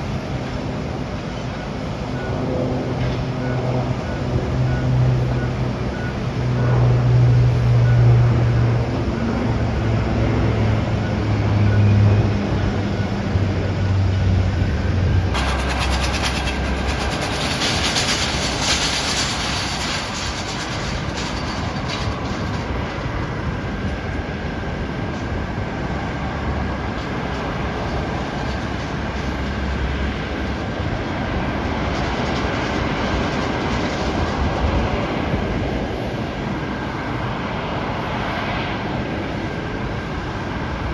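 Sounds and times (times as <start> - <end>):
loud rushing noise: 0.0 - 23.6
high whine: 0.0 - 24.3
jet engine hum: 0.0 - 40.9.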